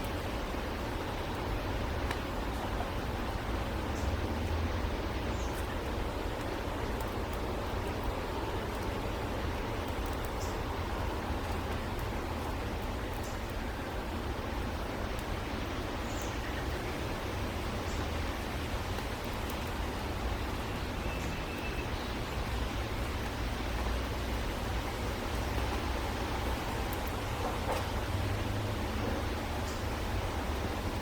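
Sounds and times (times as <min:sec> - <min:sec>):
rushing outdoor background noise: 0:00.0 - 0:31.0
small birds chirping: 0:16.0 - 0:16.9.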